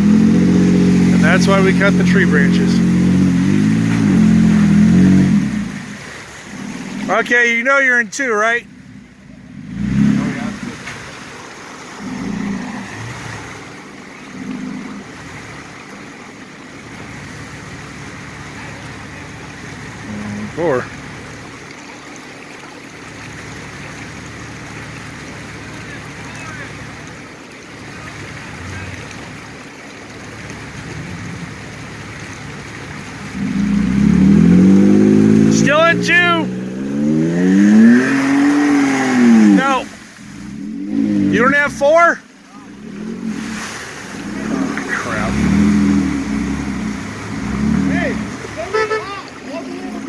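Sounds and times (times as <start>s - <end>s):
vehicle engine revving: 0.0s - 7.6s, 8.6s - 21.6s, 23.0s - 50.0s
river water rushing: 0.0s - 50.0s.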